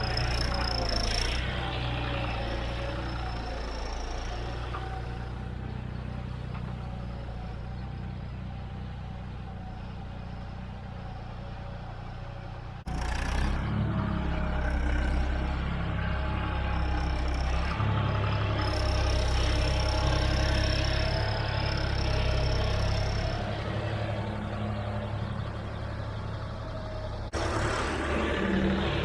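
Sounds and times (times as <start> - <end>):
diesel tractor engine running: 0.0 - 29.0.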